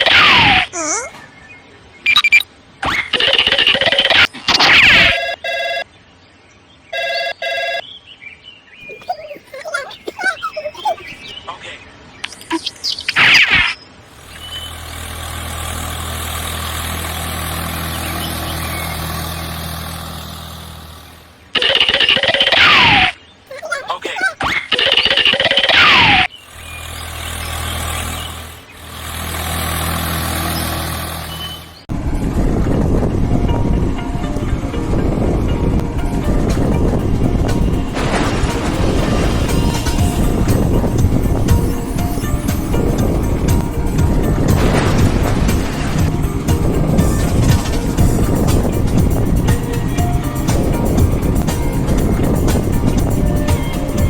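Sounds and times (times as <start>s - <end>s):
electronic ringing beeps: 2.1s - 2.5s, 4.8s - 5.9s, 6.9s - 7.9s
faint chirps: 8.8s - 15.1s
engine idling: 14.1s - 21.4s, 26.4s - 31.8s, 36.0s - 54.0s
loud noisy rush: 37.9s - 54.0s.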